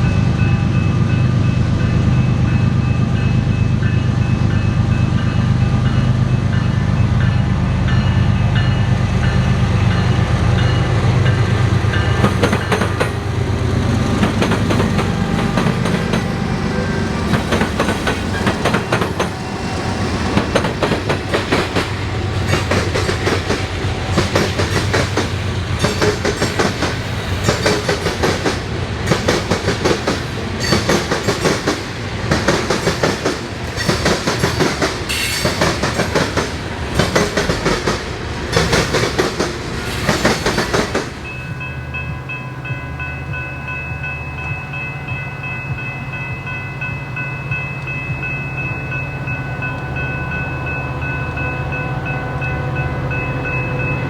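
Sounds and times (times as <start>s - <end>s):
diesel locomotive engine hum: 0.0s - 54.0s
train wheels clacking on rail joints: 11.3s - 41.4s.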